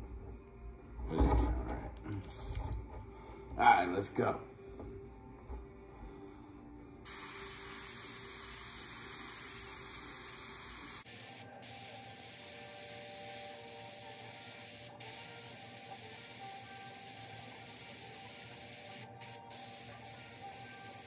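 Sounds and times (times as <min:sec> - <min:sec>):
airbrush hissing: 0:07.1 - 0:21.0.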